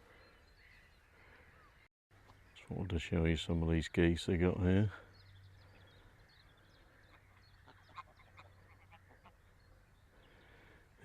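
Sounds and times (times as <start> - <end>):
ducks and geese calling: 5.7 - 10.7.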